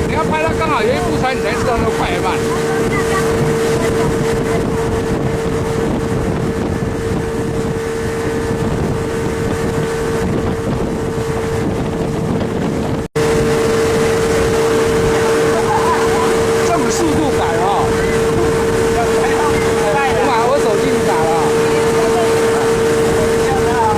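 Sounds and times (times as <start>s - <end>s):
speedboat engine humming: 0.0s - 23.9s
wind on microphone: 0.0s - 23.9s.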